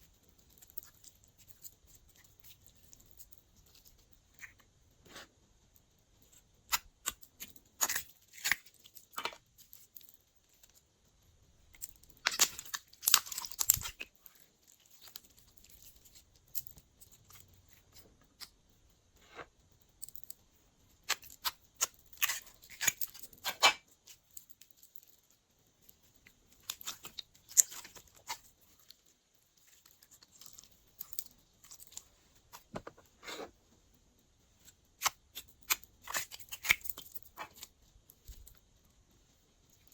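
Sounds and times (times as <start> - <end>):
slime crackling and popping: 6.2 - 10.9, 11.6 - 18.6, 19.9 - 25.1, 25.8 - 32.7, 34.6 - 38.6.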